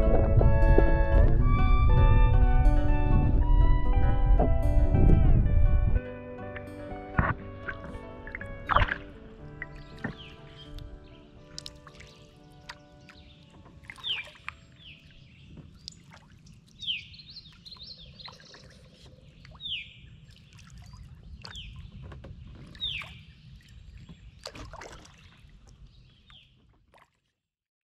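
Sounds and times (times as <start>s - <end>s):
water dripping: 7.2s - 27.1s
bird calling: 7.7s - 16.0s.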